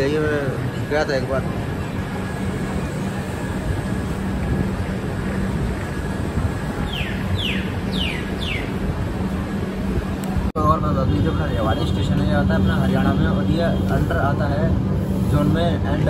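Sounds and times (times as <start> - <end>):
train running rumble: 0.0 - 16.0.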